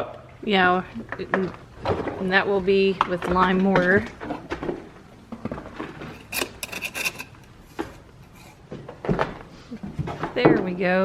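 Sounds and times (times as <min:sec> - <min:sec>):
tools scraping and knocking: 0:05.4 - 0:10.7.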